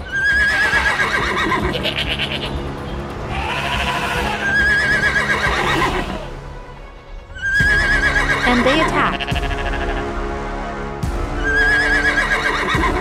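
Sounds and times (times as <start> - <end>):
horse whinnying: 0.0 - 2.5, 3.3 - 6.3, 7.4 - 10.0, 11.4 - 13.0
background music: 0.0 - 13.0
animal calls: 3.3 - 6.3.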